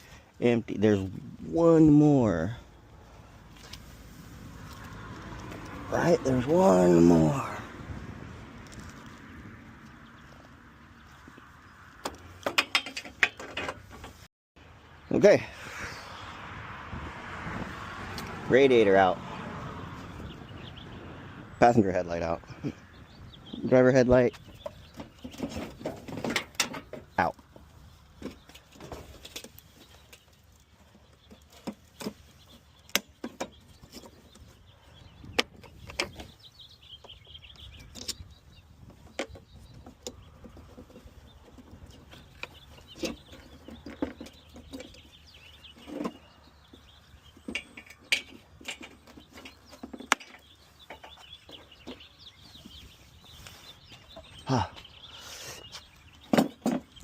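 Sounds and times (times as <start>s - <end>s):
tools and parts clicking: 12.0s - 14.2s
birds chirping faintly: 17.2s - 57.0s.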